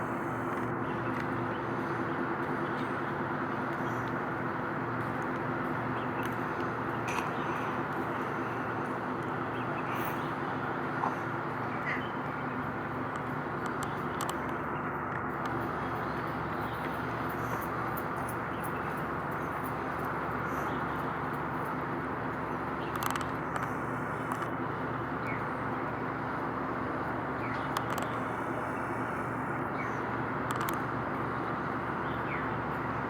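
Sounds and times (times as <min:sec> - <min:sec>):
engines and traffic drone: 0:00.0 - 0:33.0
faint clicks: 0:13.1 - 0:15.6, 0:22.8 - 0:24.6, 0:27.4 - 0:29.2, 0:30.4 - 0:30.9.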